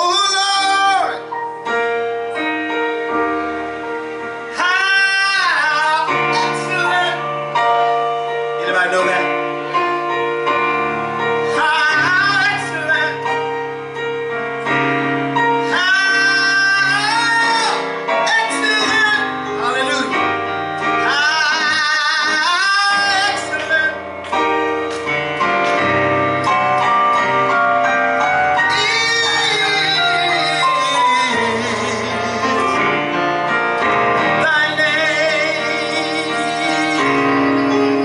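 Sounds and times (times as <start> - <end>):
sustained keyboard chords: 0.0 - 38.0
person singing with vibrato: 4.5 - 7.3, 11.3 - 13.4, 15.5 - 24.1, 28.5 - 38.0.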